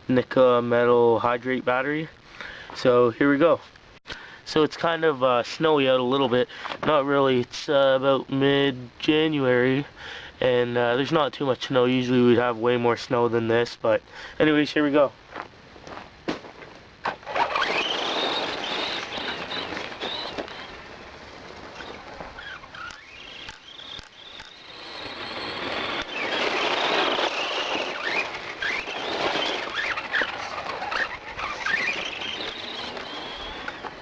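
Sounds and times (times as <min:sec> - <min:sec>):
rc car electric motor whining: 0:17.0 - 0:34.0.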